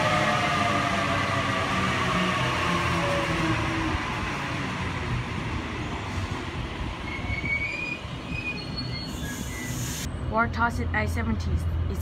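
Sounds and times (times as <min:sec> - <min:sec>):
train wheels rumbling on rails: 0:00.0 - 0:10.9
high wheel squeals: 0:07.0 - 0:10.1.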